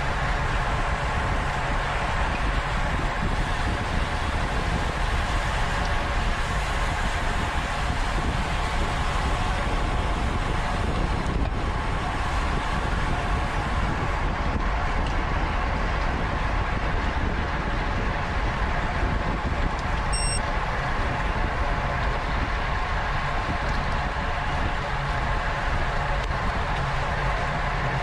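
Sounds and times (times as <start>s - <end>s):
wind noise on microphone: 0.0s - 28.0s
short high chirp: 20.2s - 20.4s.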